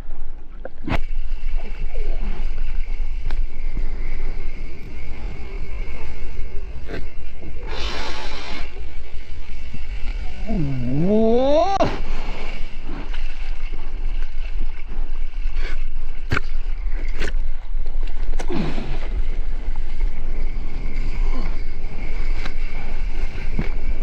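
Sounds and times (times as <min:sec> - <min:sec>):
sea waves washing: 0:00.9 - 0:17.2.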